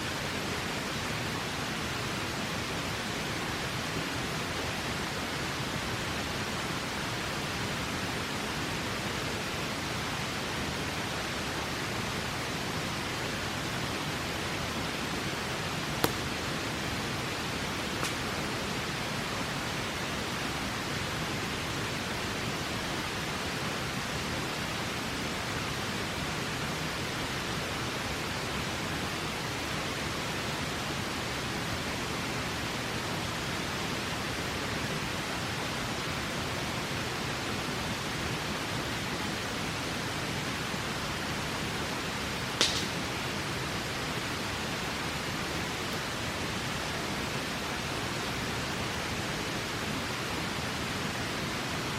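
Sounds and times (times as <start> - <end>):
river flowing: 0.0 - 51.9
campfire pop: 16.0 - 16.4, 18.0 - 18.3, 42.6 - 43.0.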